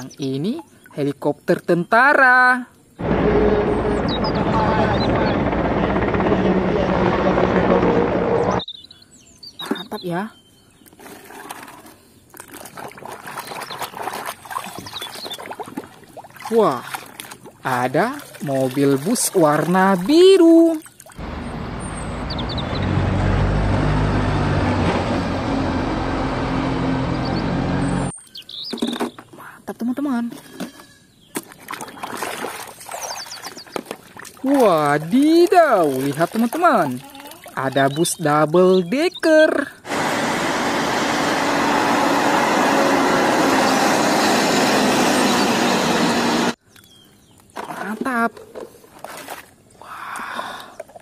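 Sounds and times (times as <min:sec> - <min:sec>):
bus diesel engine humming: 0:03.0 - 0:08.6, 0:21.2 - 0:28.1, 0:39.9 - 0:46.6
bird chirps: 0:03.9 - 0:05.4, 0:08.5 - 0:10.9, 0:14.8 - 0:15.5, 0:21.8 - 0:23.0, 0:27.1 - 0:29.4, 0:32.9 - 0:33.8.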